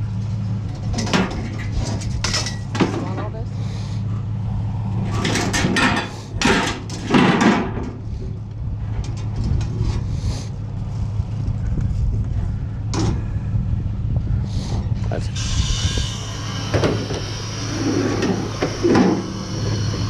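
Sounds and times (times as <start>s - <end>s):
vehicle engine running: 0.0s - 20.0s
scrap scraping and clattering: 0.6s - 3.4s, 5.0s - 10.5s, 14.5s - 20.0s.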